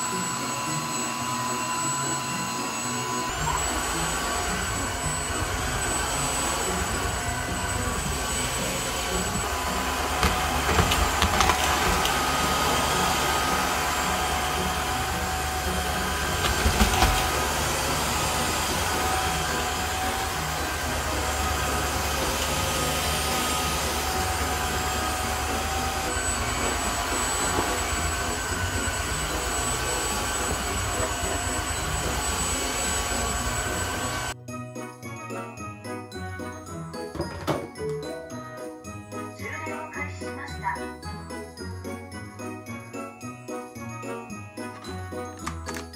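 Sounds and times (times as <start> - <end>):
stick vacuum whining: 0.0 - 34.4, 41.1 - 45.9.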